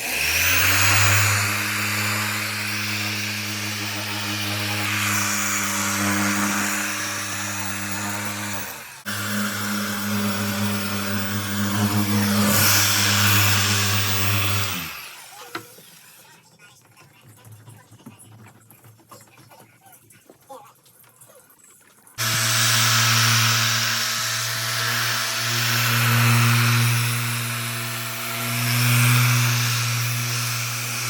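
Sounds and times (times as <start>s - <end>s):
electric polisher humming: 0.0s - 16.0s, 22.2s - 31.0s.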